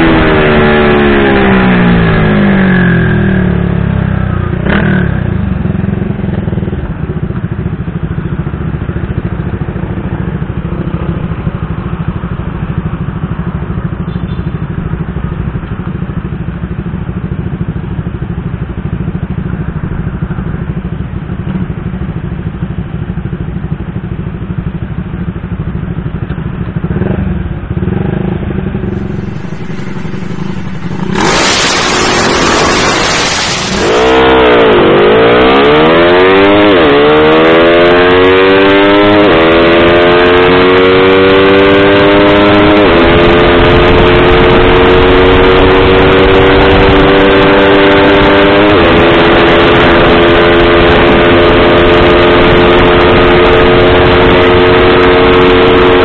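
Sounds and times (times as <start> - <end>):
motorcycle engine accelerating: 0.0 - 20.6, 26.8 - 56.0
loud rushing noise: 28.9 - 34.5.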